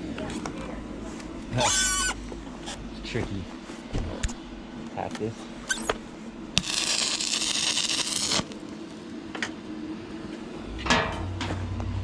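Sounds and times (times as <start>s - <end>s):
arc welder crackling hiss: 6.5s - 9.1s.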